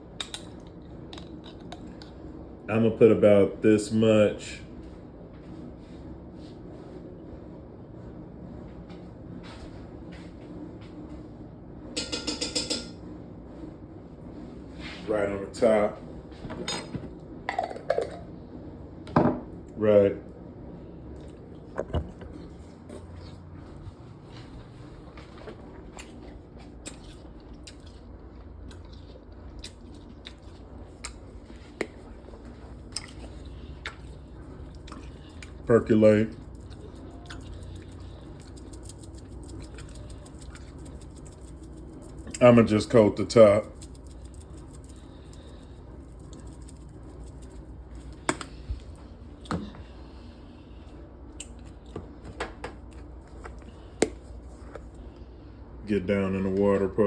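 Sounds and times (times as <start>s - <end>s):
low steady hum: 0.0s - 57.0s
utensils knocking against cookware: 12.0s - 13.0s.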